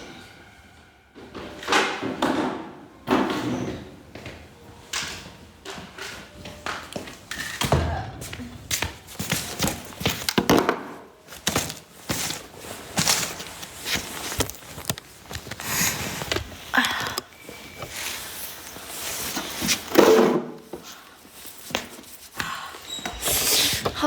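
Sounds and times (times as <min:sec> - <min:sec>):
objects knocking and thudding: 0:07.6 - 0:17.1, 0:19.6 - 0:20.9
rustling: 0:11.3 - 0:16.7.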